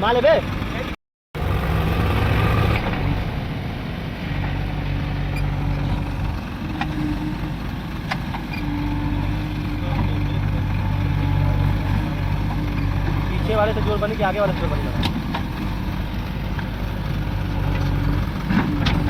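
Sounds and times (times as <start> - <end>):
diesel engines running: 0.0 - 19.0.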